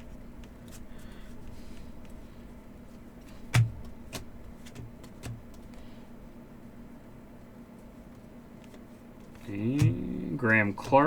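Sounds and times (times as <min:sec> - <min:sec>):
faint room hum: 0:00.0 - 0:11.0
soft taps of cards: 0:03.2 - 0:05.8
cards knocking on table: 0:03.5 - 0:05.6, 0:09.6 - 0:11.0.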